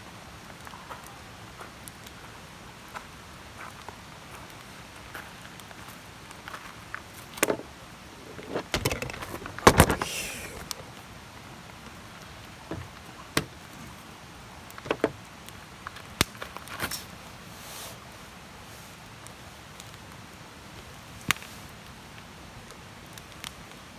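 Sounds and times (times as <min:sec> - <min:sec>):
campfire crackling and popping: 0:05.5 - 0:17.0, 0:19.2 - 0:23.9
brief hiss from fire: 0:10.0 - 0:10.8, 0:16.8 - 0:19.1.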